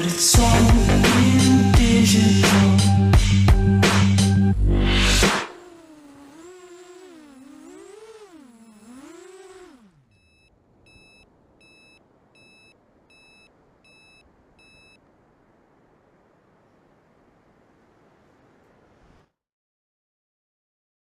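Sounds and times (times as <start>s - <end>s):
quadcopter motors whirring: 4.6s - 12.6s
short beeps: 10.1s - 15.0s.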